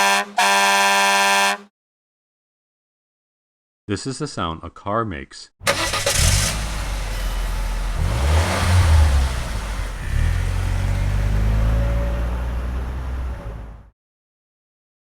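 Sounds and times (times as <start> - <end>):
car engine revving: 5.6 - 13.9.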